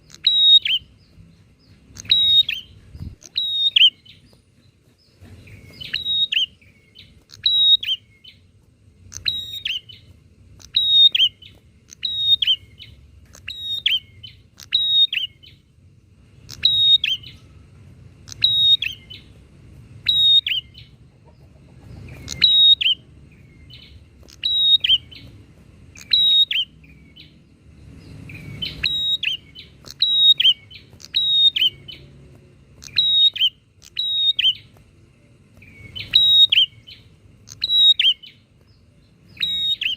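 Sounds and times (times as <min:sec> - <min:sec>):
bird chirping calls: 0:00.0 - 0:39.9.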